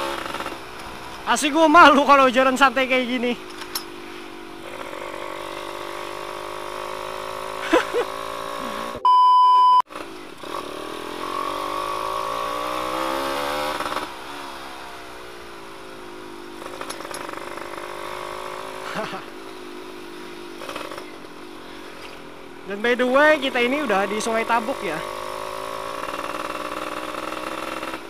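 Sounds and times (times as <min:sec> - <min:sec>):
two-stroke motorcycle engine revving: 0:00.0 - 0:09.0, 0:09.9 - 0:28.0
loud steady beep: 0:09.0 - 0:09.8.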